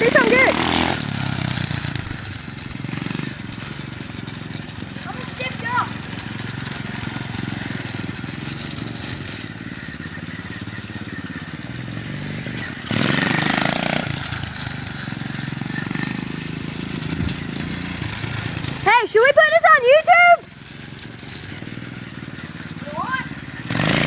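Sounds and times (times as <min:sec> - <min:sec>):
dirt bike engine running: 0:00.0 - 0:24.0.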